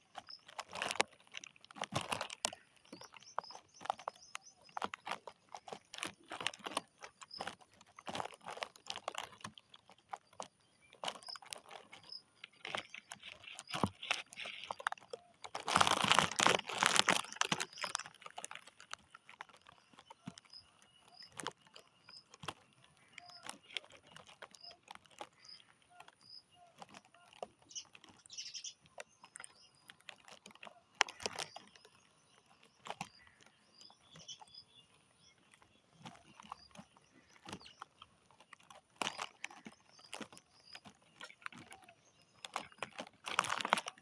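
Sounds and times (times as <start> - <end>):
clicks and crunches in grass: 0.0 - 44.0
faint high bird chirps: 23.0 - 38.0.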